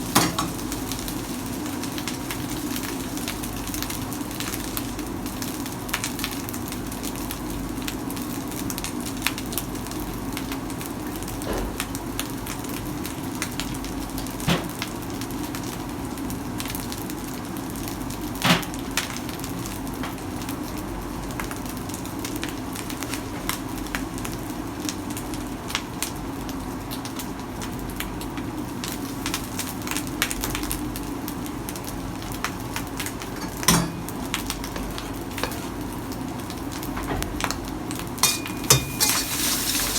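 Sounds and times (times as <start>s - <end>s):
food sizzling in hot oil: 0.0s - 9.4s, 28.3s - 36.9s, 37.7s - 39.9s.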